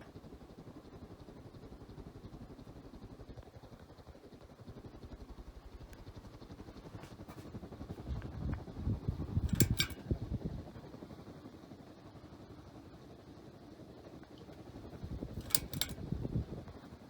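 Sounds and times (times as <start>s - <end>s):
ceiling fan whoosh and hum: 0.0s - 17.0s
sharp clicks: 9.5s - 10.0s, 15.3s - 16.0s.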